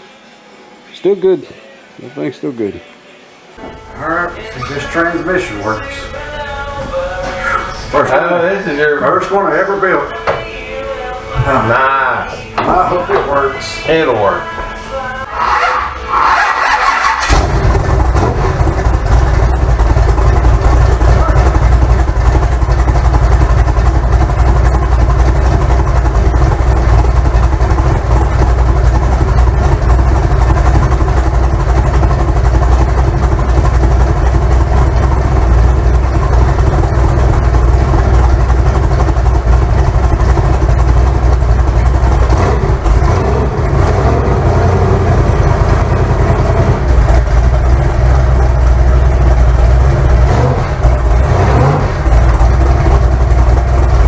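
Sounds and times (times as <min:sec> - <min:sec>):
car engine rumbling: 0:14.9 - 0:54.0.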